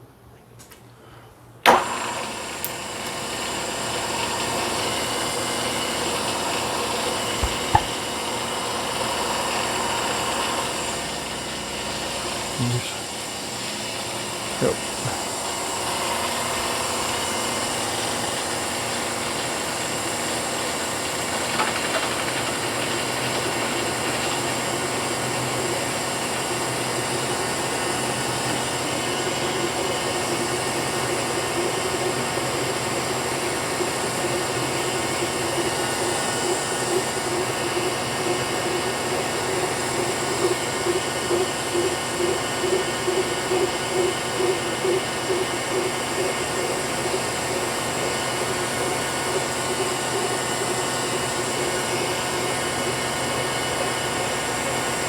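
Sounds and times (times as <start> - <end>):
milling machine cutting metal: 2.2 - 55.0
regular pulsing: 35.2 - 50.4.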